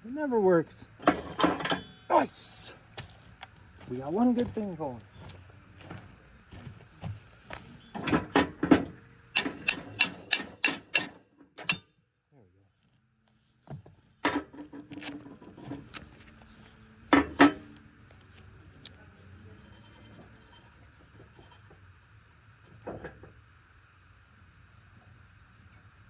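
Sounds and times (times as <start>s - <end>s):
tools and mower parts clattering: 1.0s - 2.0s, 8.0s - 11.8s
faint steady hum: 15.6s - 26.0s.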